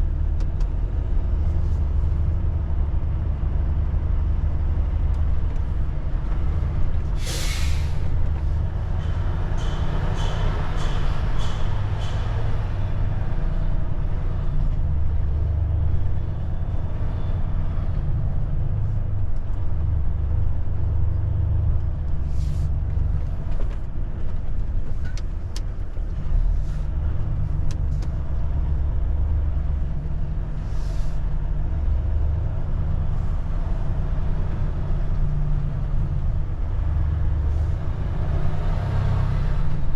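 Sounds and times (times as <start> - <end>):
truck engine and road rumble: 0.0 - 39.9
compressed air hisses: 7.2 - 8.0.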